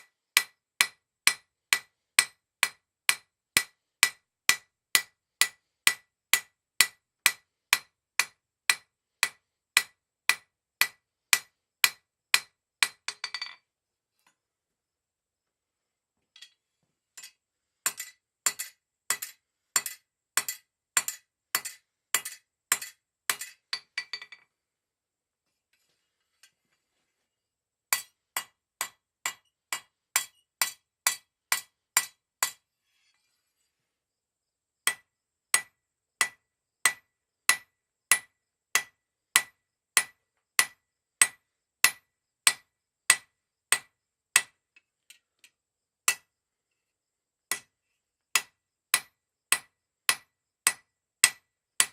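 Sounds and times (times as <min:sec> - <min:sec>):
hammer striking steel on anvil: 0:00.4 - 0:13.6, 0:17.2 - 0:24.4, 0:27.9 - 0:32.6, 0:35.6 - 0:44.5, 0:48.4 - 0:51.9.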